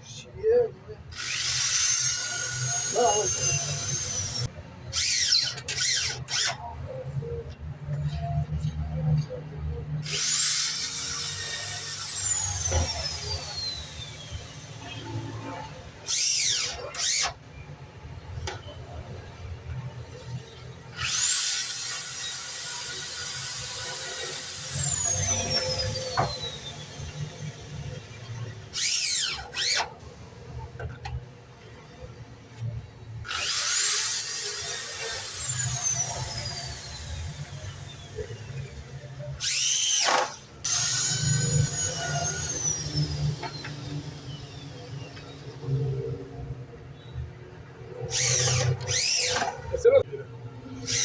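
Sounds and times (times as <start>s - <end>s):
power tool motor whining: 1.1s - 6.7s, 10.0s - 17.5s, 20.1s - 31.0s, 33.2s - 46.4s, 47.9s - 49.8s, 50.8s - 51.0s.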